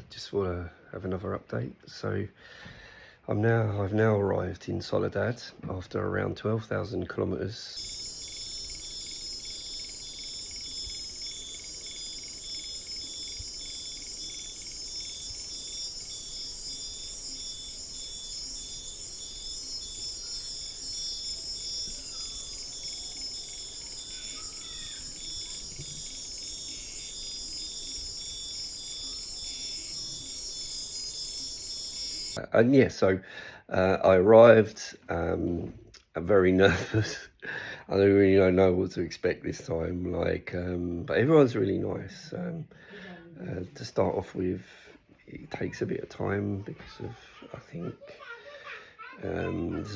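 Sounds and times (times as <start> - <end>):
insect chorus trilling: 7.8 - 32.4
pulsing insect trill: 7.8 - 32.4.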